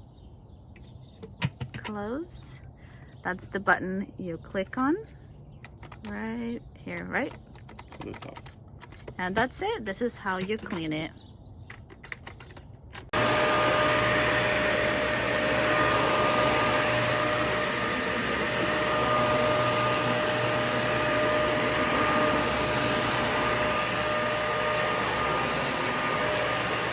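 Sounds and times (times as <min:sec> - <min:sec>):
vacuum cleaner running: 0:13.1 - 0:26.9.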